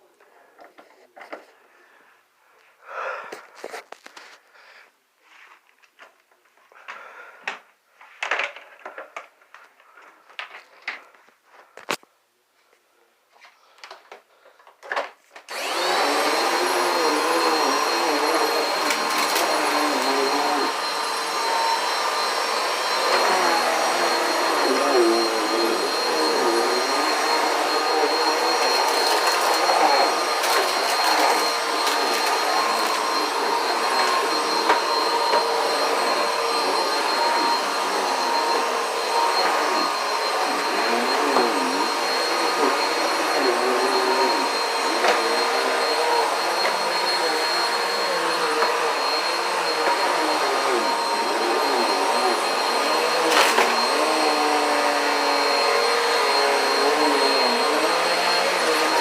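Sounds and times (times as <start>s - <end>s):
vacuum cleaner running: 15.5s - 59.0s.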